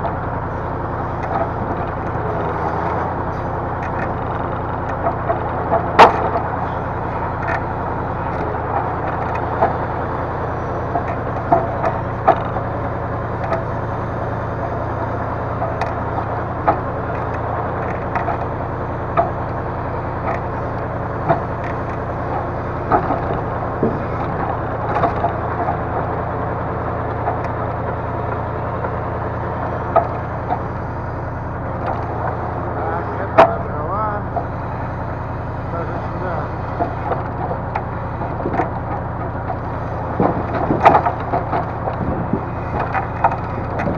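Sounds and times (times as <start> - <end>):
crane engine drone: 0.0 - 43.9
logs knocking and clunking: 0.0 - 43.9.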